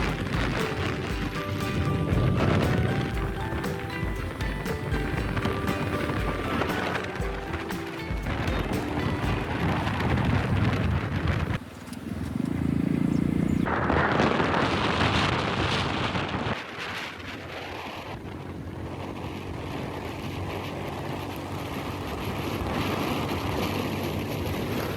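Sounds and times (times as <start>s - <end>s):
motorbike engine running: 0.0s - 15.2s
wind buffeting microphone: 0.0s - 24.9s.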